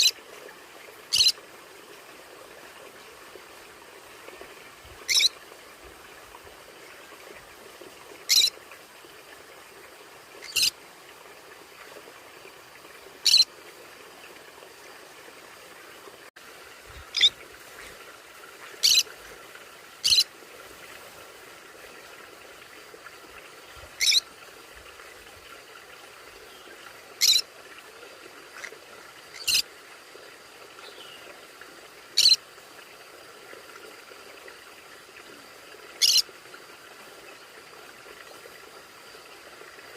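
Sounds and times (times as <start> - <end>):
conure calls: 1.1 - 1.3, 5.1 - 5.3, 8.3 - 8.5, 10.4 - 10.7, 13.2 - 13.5, 17.0 - 17.4, 18.8 - 19.1, 20.0 - 20.2, 24.0 - 24.2, 27.2 - 27.4, 29.4 - 29.6, 32.2 - 32.4, 36.0 - 36.2.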